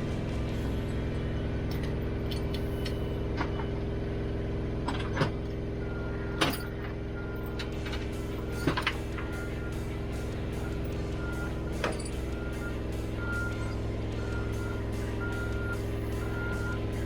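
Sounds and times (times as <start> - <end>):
diesel engine idling: 0.0 - 17.0
sharp metal clanks: 6.4 - 6.9, 7.6 - 12.7.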